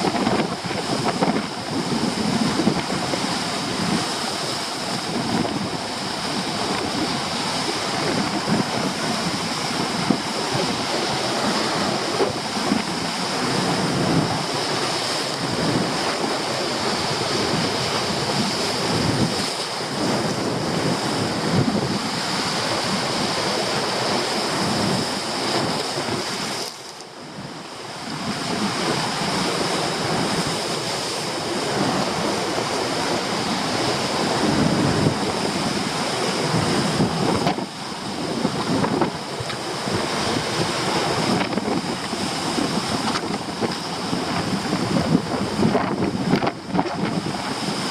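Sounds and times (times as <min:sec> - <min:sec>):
waves breaking on rocky shore: 0:00.0 - 0:47.9
wind buffeting microphone: 0:00.0 - 0:47.9.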